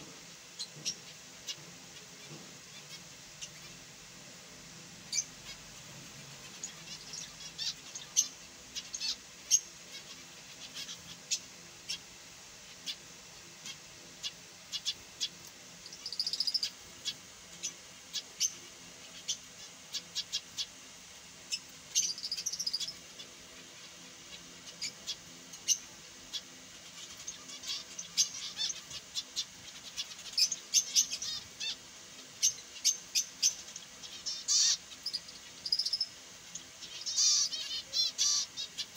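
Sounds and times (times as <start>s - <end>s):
finches chirping: 5.1s - 38.9s
buzzy bird call: 32.4s - 36.1s, 36.8s - 38.9s.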